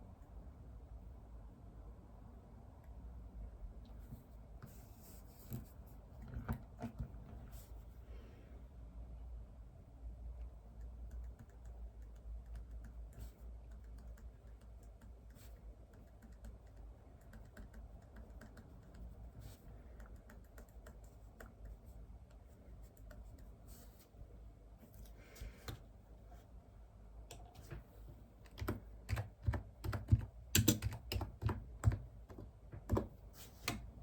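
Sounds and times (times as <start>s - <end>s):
faint low hum: 0.0s - 34.0s
keyboard typing: 10.8s - 19.2s, 28.5s - 33.9s.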